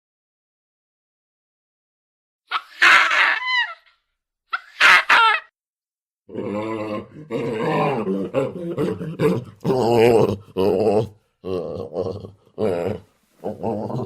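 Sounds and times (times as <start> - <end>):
primate low groaning calls: 6.3 - 14.0.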